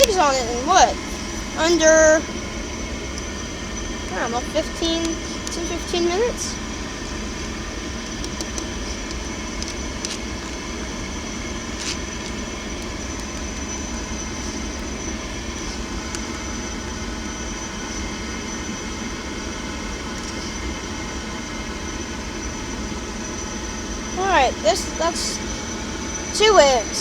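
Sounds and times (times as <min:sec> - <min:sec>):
high whine: 0:00.0 - 0:27.0
pool heater blower rushing: 0:00.0 - 0:27.0
faint clicks: 0:08.0 - 0:10.6.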